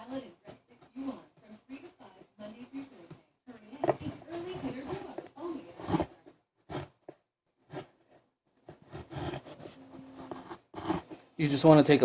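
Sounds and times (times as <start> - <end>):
chisel scraping wood: 3.8 - 11.2.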